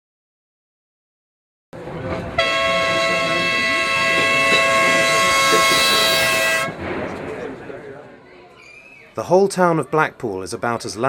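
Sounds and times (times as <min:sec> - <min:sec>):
street noise: 0:01.8 - 0:11.0
tram horn blast: 0:02.2 - 0:06.8.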